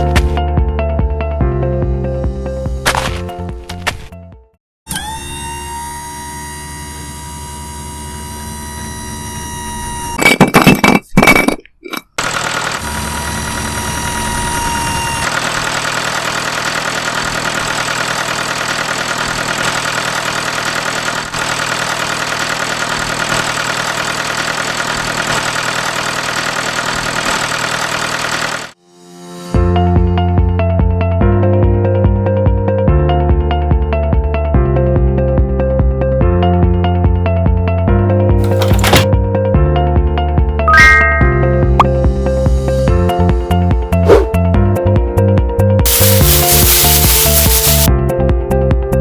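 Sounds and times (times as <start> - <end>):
small engine running: 4.9 - 10.1, 12.2 - 28.8, 38.4 - 39.1, 45.9 - 47.9
loud short engine bursts: 12.2 - 28.8.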